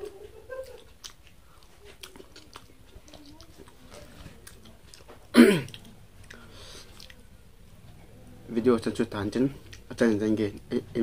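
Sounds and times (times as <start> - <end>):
wet chewing and lip-smacking: 0.0 - 7.4.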